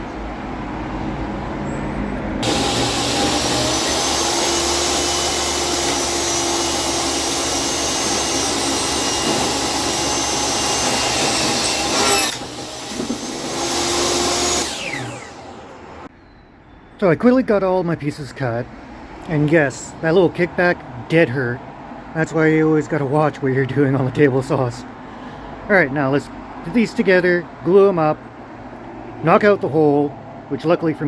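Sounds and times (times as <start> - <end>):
table saw cutting wood: 2.4 - 16.1.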